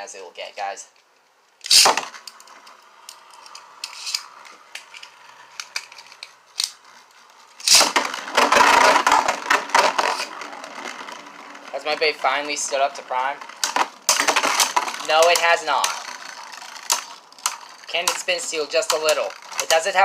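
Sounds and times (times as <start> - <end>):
spinning tops whirring: 3.3 - 5.5, 7.6 - 20.0
tops clashing with rattling clatter: 7.7 - 11.2, 13.4 - 20.0.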